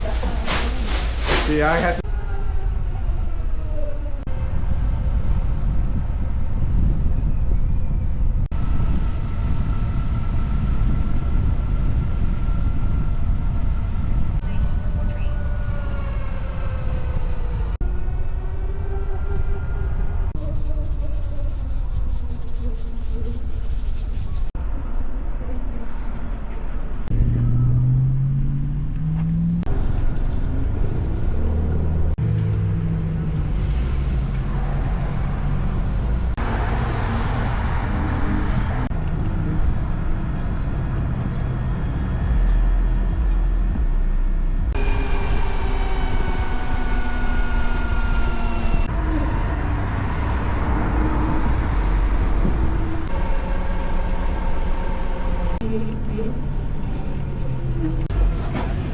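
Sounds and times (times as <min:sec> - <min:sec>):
wind and road rumble: 0:00.0 - 0:58.9
motorcycle engine accelerating: 0:44.7 - 0:55.6.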